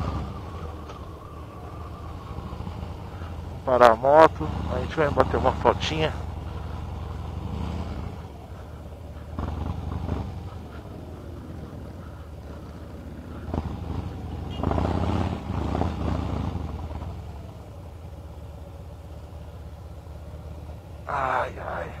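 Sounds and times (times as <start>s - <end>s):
motorcycle engine running slowly: 0.0s - 3.6s, 6.2s - 14.6s, 15.2s - 21.1s.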